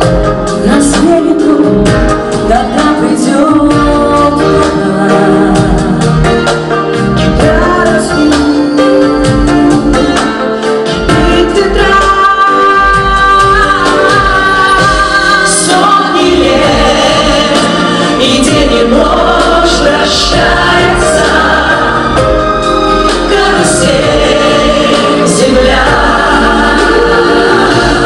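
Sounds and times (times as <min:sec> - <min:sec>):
instrumental accompaniment: 0:00.0 - 0:28.0
choir singing: 0:12.6 - 0:28.0.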